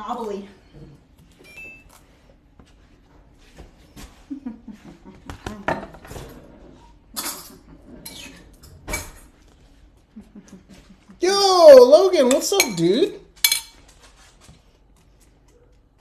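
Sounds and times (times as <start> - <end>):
utensils clicking against dishes: 12.2 - 13.8.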